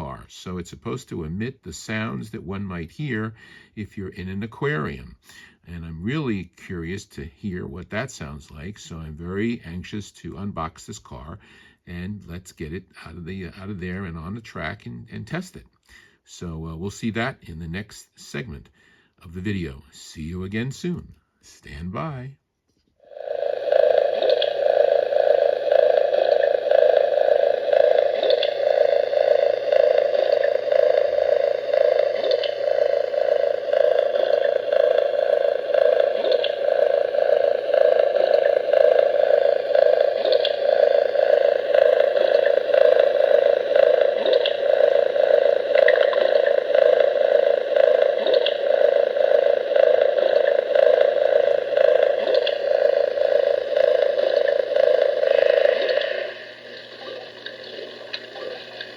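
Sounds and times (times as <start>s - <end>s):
pulsing hum from small speaker: 23.0s - 58.9s.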